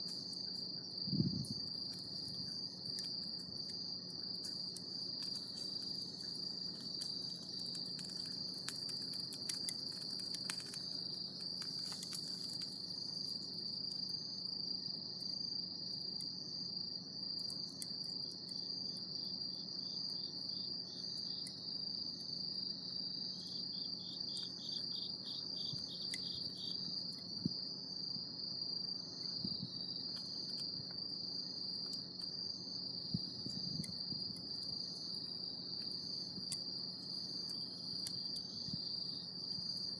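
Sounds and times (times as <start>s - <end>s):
crickets chirring: 0.0s - 39.9s
faint clicks and crackles: 1.8s - 13.4s
insect pulsed call: 23.4s - 27.7s.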